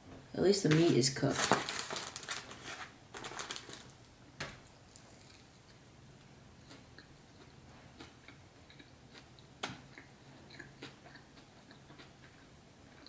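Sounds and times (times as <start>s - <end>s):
low steady hum: 0.0s - 13.0s
chewing meat: 6.6s - 13.0s.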